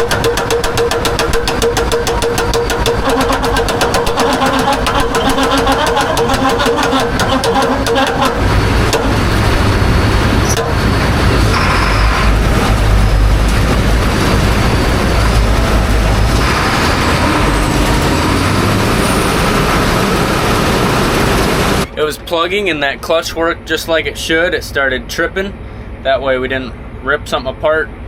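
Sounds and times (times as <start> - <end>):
slip clutch clattering: 0.0 - 9.4
combine harvester rumble: 0.0 - 28.0.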